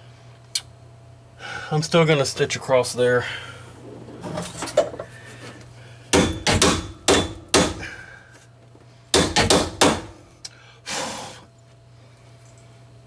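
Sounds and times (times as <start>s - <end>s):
sharp knocks on sheet metal: 6.2s - 7.9s, 9.2s - 10.2s.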